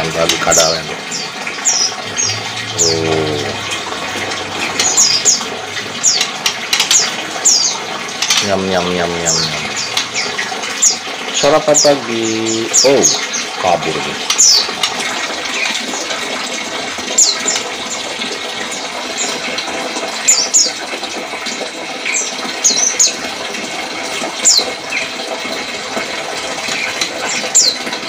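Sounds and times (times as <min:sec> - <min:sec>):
small birds chirping: 0:04.7 - 0:15.8.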